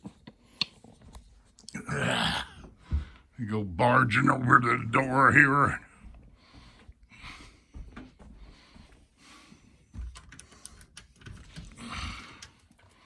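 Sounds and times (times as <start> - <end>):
soft footsteps: 5.9 - 10.2.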